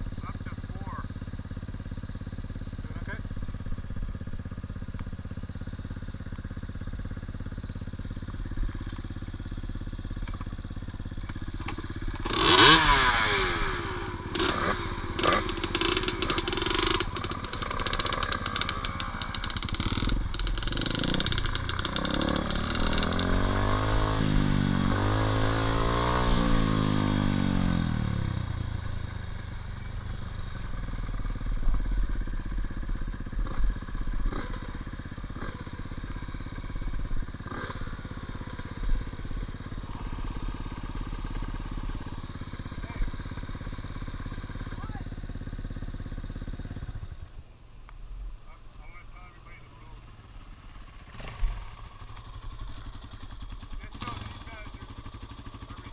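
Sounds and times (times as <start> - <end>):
dirt bike engine revving: 11.0 - 29.0, 29.8 - 47.3, 48.8 - 55.9.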